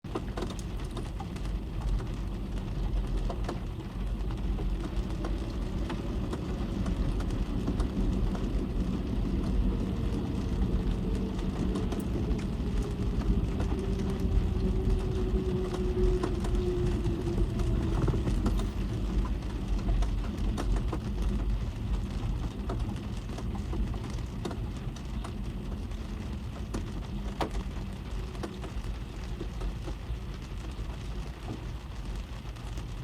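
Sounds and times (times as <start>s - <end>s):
rain drops tapping on car roof: 0.0s - 33.0s.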